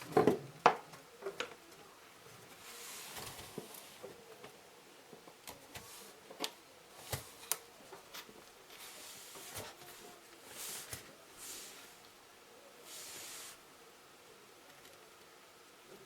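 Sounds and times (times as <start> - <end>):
hard objects clicking and knocking: 0.0 - 1.6.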